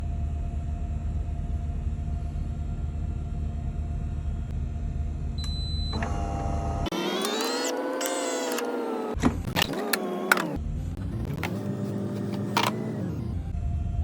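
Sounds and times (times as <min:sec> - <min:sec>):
motor whining: 0:05.9 - 0:13.5
espresso machine humming: 0:06.0 - 0:13.1.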